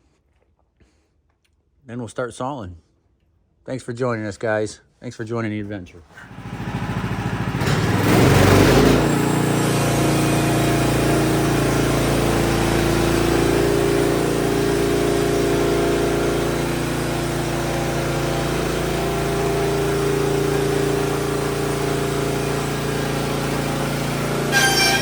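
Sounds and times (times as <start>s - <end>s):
sawmill engine running: 6.1s - 25.0s.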